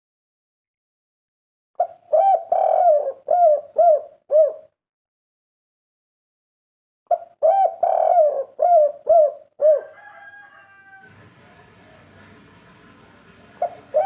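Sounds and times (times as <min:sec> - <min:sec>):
dove cooing: 0:01.8 - 0:04.8, 0:07.1 - 0:12.4, 0:13.3 - 0:14.0
faint hiss: 0:11.1 - 0:14.0.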